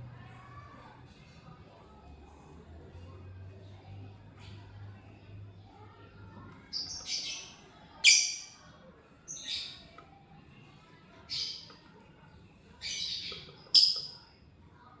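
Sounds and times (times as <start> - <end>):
lovebird chirping: 12.8 - 14.2.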